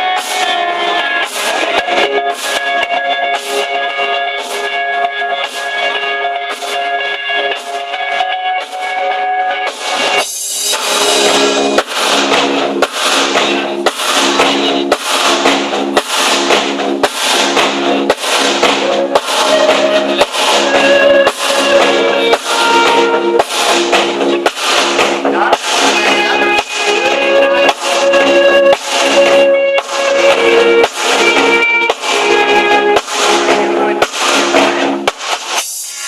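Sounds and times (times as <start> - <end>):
band playing with drums and guitar: 0.0 - 36.0.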